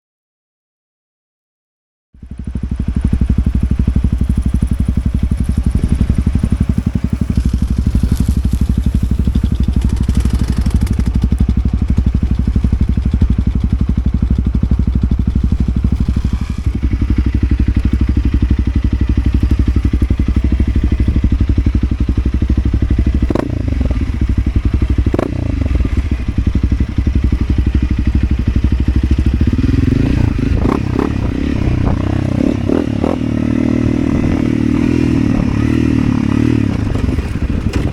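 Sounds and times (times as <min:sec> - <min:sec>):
motorcycle engine running: 0:02.2 - 0:37.9.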